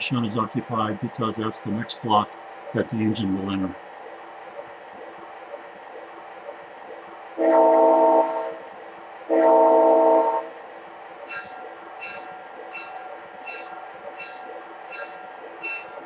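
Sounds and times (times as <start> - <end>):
model locomotive horn blasts: 7.4 - 8.6, 9.3 - 10.6
locomotive bell ringing: 11.3 - 16.0.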